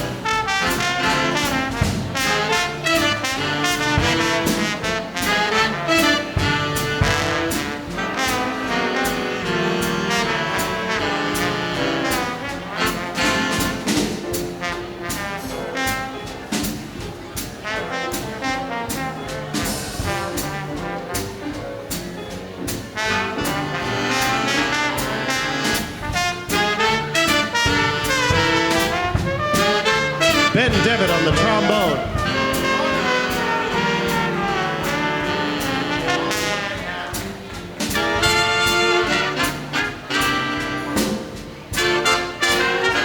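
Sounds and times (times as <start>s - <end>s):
slide trombone solo: 0.0s - 14.0s, 14.6s - 16.4s, 17.6s - 21.5s, 22.9s - 37.2s, 37.9s - 43.0s
big band swing jazz: 0.0s - 43.0s.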